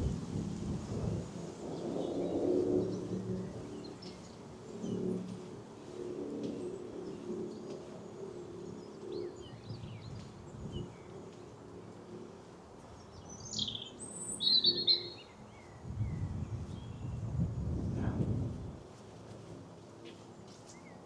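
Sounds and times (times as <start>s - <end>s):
songbird singing: 13.0s - 17.4s.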